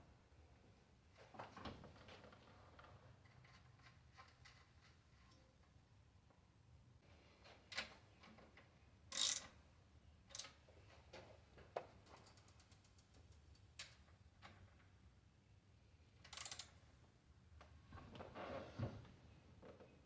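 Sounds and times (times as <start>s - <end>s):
knocks and clicks on bicycle wheel: 9.1s - 9.6s, 10.3s - 14.7s, 16.2s - 16.8s.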